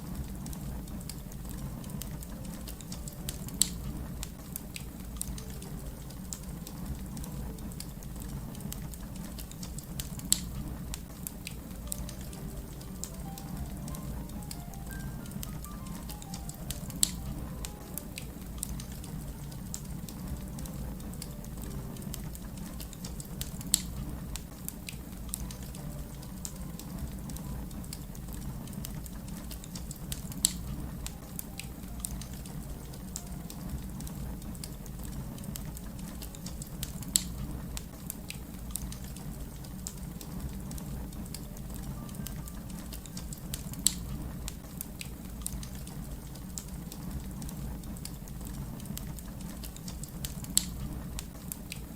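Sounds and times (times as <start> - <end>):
wood fire crackling: 0.0 - 51.9
sharp fire pops: 13.9 - 25.9.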